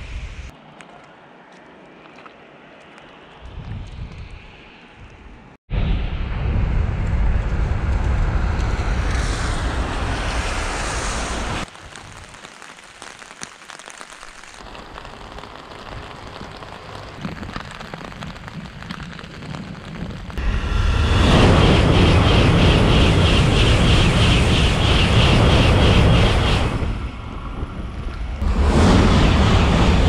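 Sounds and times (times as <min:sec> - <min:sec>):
wind rumbling on microphone: 0:00.0 - 0:12.4, 0:14.6 - 0:30.0
high-speed train rushing: 0:05.7 - 0:11.7, 0:20.4 - 0:30.0.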